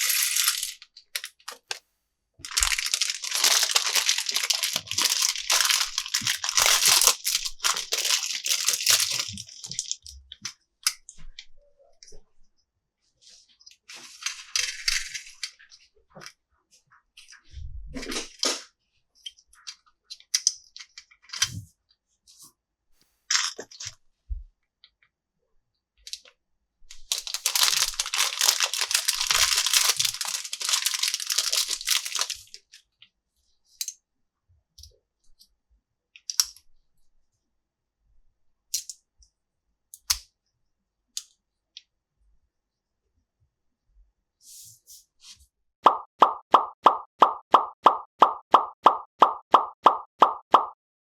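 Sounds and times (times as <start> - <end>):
packaging crinkling and tearing: 2.5 - 10.0, 27.1 - 32.6
plastic parts clicking and tapping: 27.1 - 32.4, 38.7 - 39.0.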